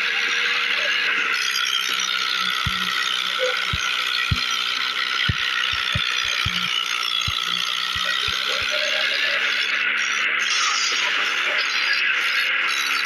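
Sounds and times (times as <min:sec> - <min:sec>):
mechanical rattling: 0:01.5 - 0:09.0.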